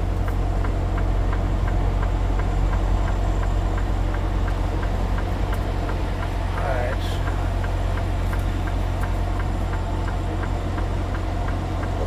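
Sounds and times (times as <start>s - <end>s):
diesel truck engine idling: 0.0s - 12.0s
faint regular ticking: 0.1s - 12.0s.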